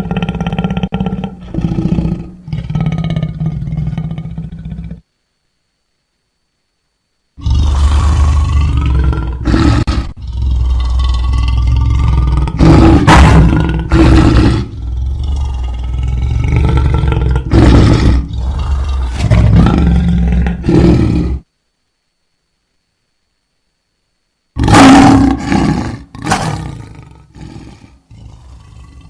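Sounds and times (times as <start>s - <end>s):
lion roaring: 0.0s - 5.0s, 7.4s - 21.5s, 24.6s - 29.0s.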